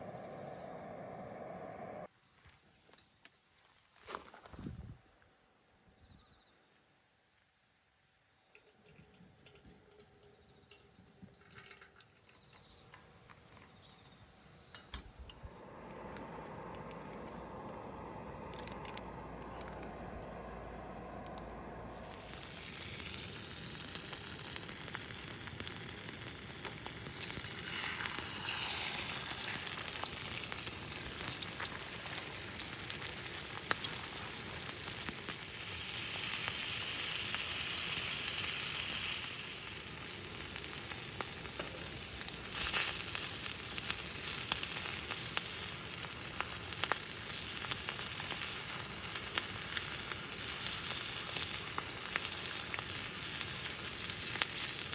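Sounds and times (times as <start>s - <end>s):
food sizzling in a pan: 21.9s - 54.9s.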